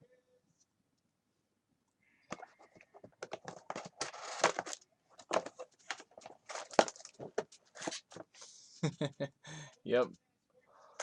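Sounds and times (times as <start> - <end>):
cards clicking and crackling: 2.3 - 8.2
wrappers crinkling and tearing: 3.9 - 4.8.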